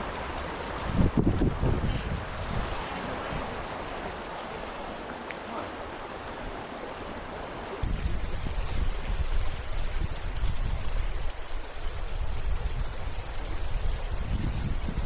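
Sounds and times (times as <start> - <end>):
wind rumble on microphone: 0.0 - 3.8, 7.8 - 15.0
water rushing over rocks: 0.0 - 15.0.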